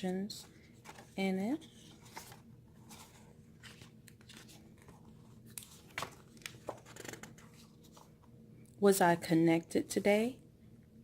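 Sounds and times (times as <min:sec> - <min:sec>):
paper pages rustling: 0:00.7 - 0:08.3.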